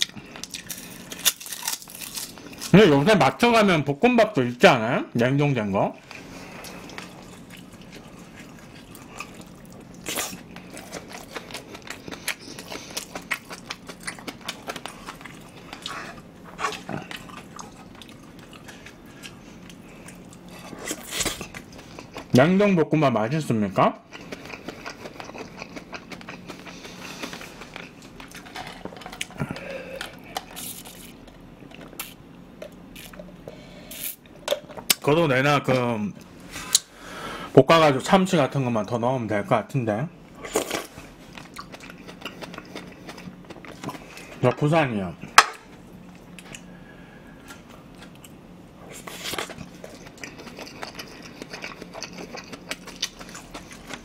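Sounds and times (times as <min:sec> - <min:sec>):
person chewing food: 0:06.0 - 0:22.3, 0:24.1 - 0:33.6, 0:40.4 - 0:44.3, 0:46.0 - 0:54.0.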